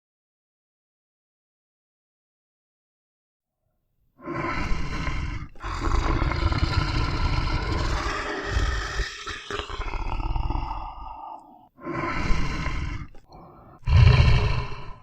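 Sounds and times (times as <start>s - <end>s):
large animal roaring: 4.3s - 15.0s.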